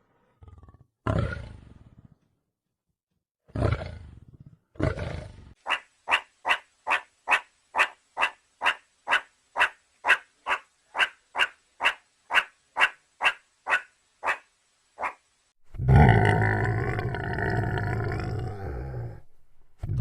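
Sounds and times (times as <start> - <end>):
deep animal roars: 0.0 - 2.3, 3.5 - 5.6, 15.7 - 20.0.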